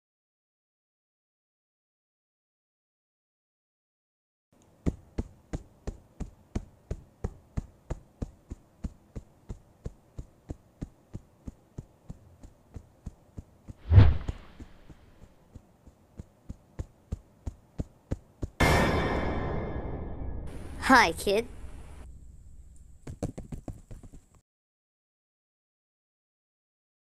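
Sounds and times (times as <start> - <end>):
dull thuds: 13.7 - 15.0
loud thump with hissing tail: 13.8 - 14.9.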